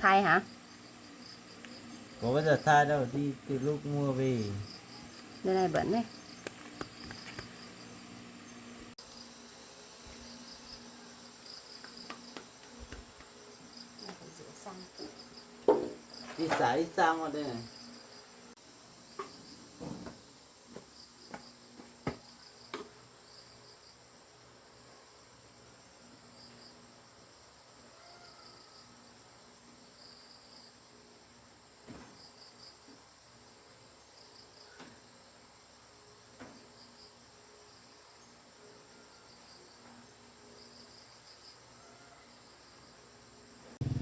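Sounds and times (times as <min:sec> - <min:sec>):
crickets chirping: 0:00.0 - 0:44.0
high insect whine: 0:00.0 - 0:44.0
sharp knocks: 0:15.7 - 0:16.0.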